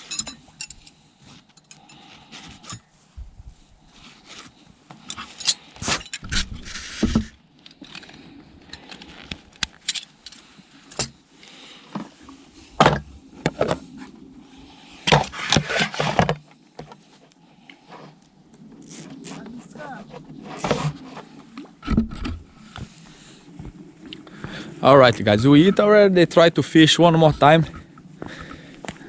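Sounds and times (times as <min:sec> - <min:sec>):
cups and utensils clinking: 0:00.0 - 0:00.9.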